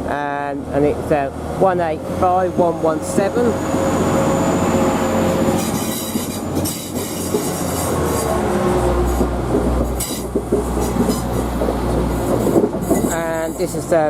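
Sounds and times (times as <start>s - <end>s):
diesel train engine rumble: 0.0s - 14.0s
wheels clacking over rail joints: 4.7s - 14.0s.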